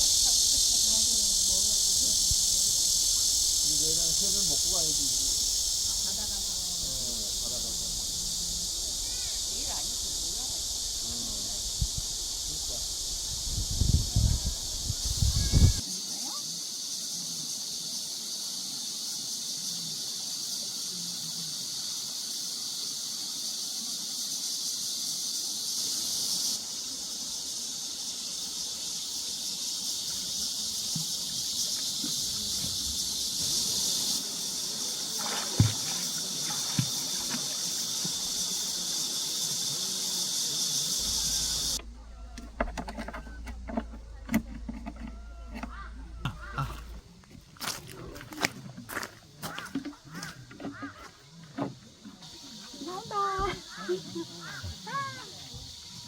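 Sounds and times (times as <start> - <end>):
cicadas buzzing: 0.0 - 56.0
low rumble: 41.1 - 47.2.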